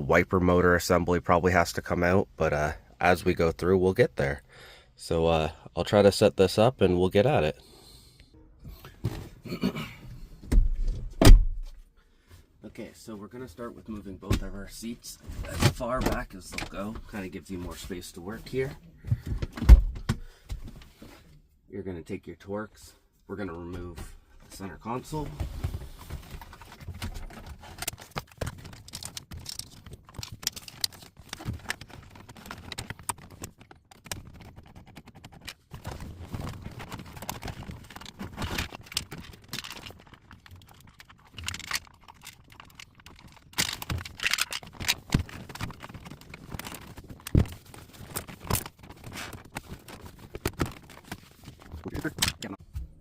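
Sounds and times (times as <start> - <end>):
plastic trim clicks and clatter: 26.6 - 52.5.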